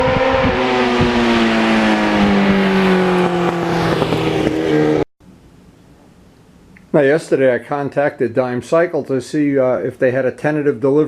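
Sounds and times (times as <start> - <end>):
motorcycle engine running: 0.0 - 5.1
wind and road noise: 0.0 - 5.1.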